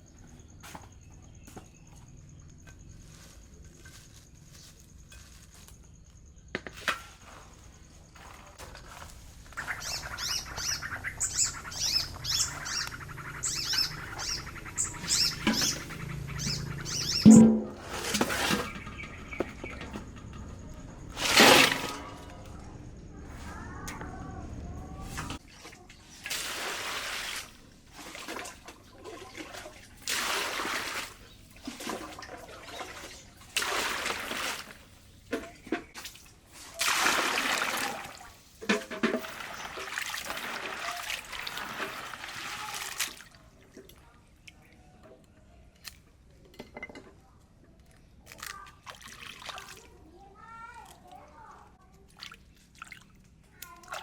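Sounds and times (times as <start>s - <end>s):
water pouring and sloshing: 6.8s - 24.2s, 24.8s - 54.0s.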